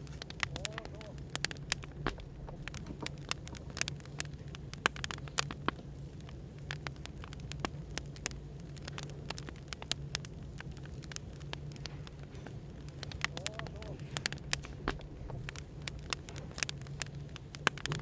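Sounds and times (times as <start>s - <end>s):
firewood crackling and popping: 0.0s - 18.0s
low background hum: 0.0s - 18.0s.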